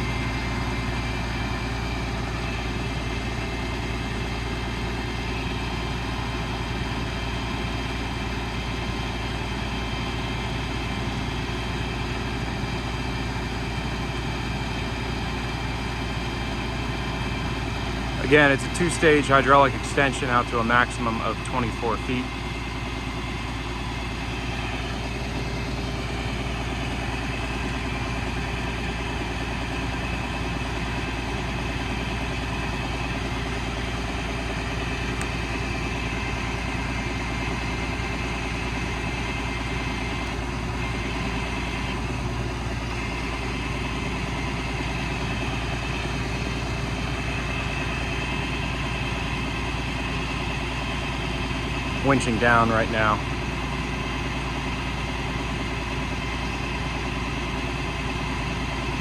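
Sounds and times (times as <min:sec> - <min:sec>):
diesel engine idling: 0:00.0 - 0:59.0
steady whine: 0:17.7 - 0:22.4, 0:51.9 - 0:53.5.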